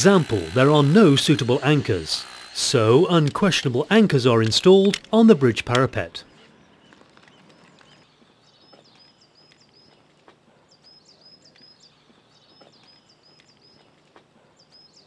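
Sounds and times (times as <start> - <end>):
small bird chirping: 6.2 - 15.0.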